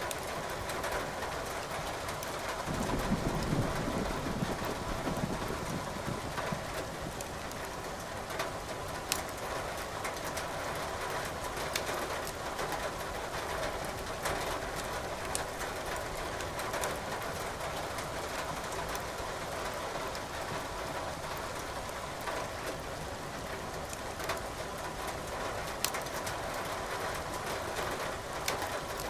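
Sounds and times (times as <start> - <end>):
firewood crackling and popping: 0.0 - 16.1, 25.6 - 29.0.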